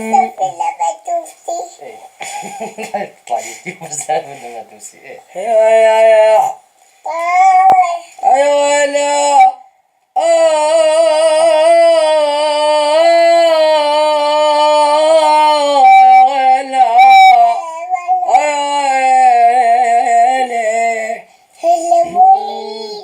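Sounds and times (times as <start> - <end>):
man singing long wavering notes: 10.2 - 17.6.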